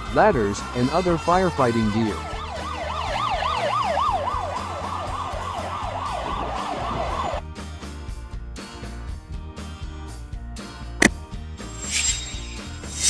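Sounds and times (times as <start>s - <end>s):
fire truck siren yelping: 0.0s - 7.4s
music with a steady beat: 2.1s - 13.0s.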